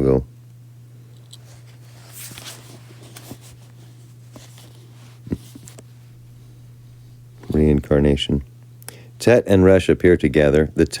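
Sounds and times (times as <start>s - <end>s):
low electrical hum: 0.0s - 11.0s
faint clicks and rustles: 1.1s - 7.7s.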